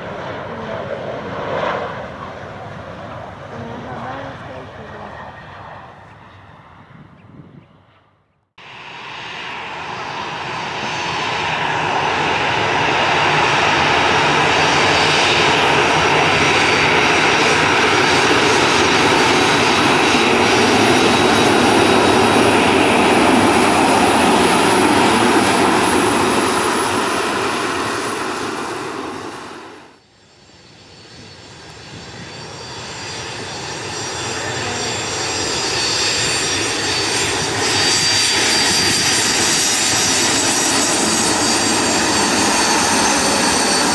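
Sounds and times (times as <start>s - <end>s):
airliner jet engines: 0.0s - 43.9s.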